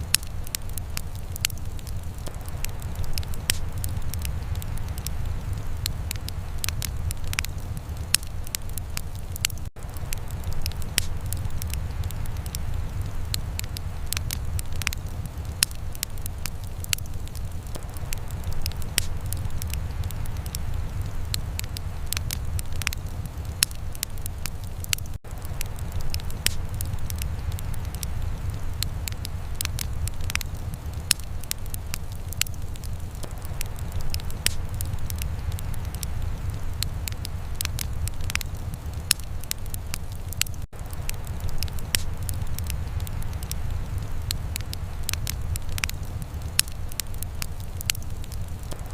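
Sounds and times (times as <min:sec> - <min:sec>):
wood fire crackling and popping: 0:00.0 - 0:48.9.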